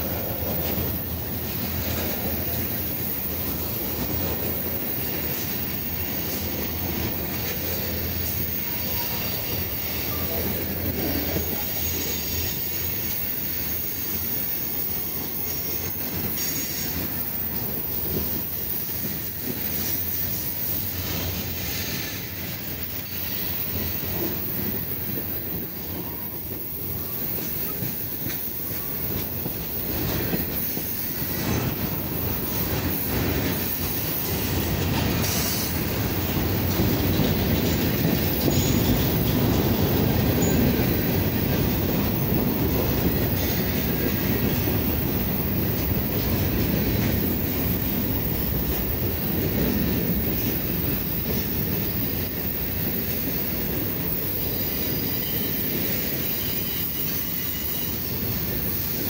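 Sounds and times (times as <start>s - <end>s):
freight train rolling past: 0.0s - 59.0s
high wheel squeal: 0.7s - 35.9s, 54.0s - 59.0s.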